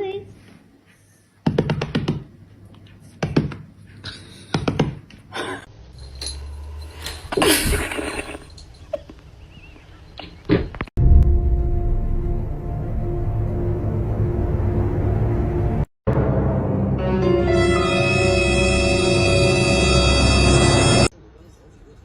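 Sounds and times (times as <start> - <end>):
thumps and knocks: 1.4 - 2.3, 3.2 - 3.7, 4.5 - 5.2
music: 11.0 - 21.1.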